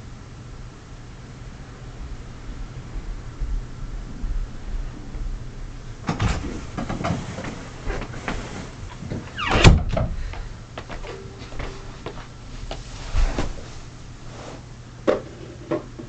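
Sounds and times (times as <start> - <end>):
creaking sliding squeak: 6.4 - 9.8.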